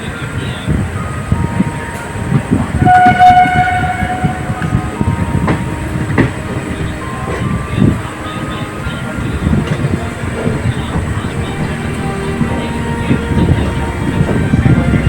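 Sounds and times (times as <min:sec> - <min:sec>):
train rumbling with wheel clicks: 0:00.0 - 0:15.0
train horn: 0:01.6 - 0:15.0.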